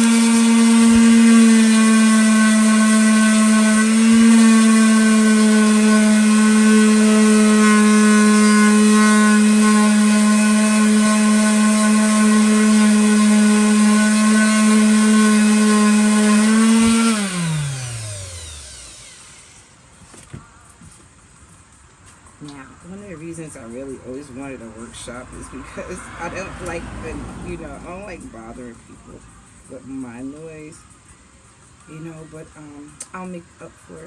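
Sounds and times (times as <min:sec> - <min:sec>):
electric sander on wood: 0:00.0 - 0:19.8.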